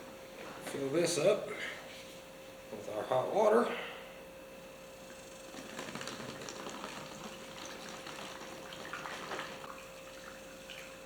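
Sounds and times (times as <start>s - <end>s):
faint steady hum: 0.0s - 11.0s
water pouring into a jug: 5.6s - 11.0s.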